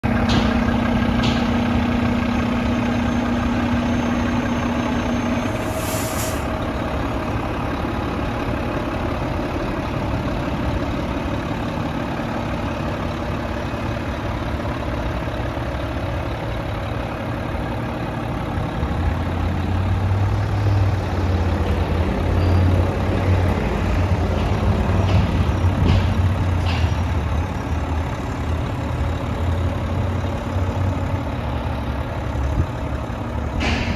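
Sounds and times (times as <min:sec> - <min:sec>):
diesel truck engine idling: 0:00.0 - 0:33.9
air hiss: 0:05.6 - 0:06.6.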